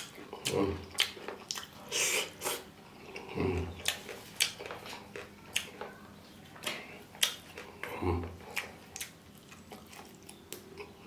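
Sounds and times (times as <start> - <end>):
person chewing with lip smacks: 0.0 - 6.0, 6.6 - 11.0.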